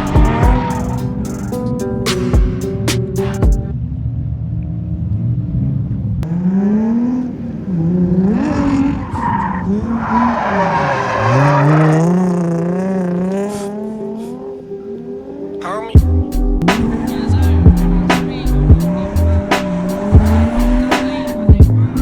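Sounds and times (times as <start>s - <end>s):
car engine revving hard: 5.4s - 14.5s, 16.6s - 22.0s.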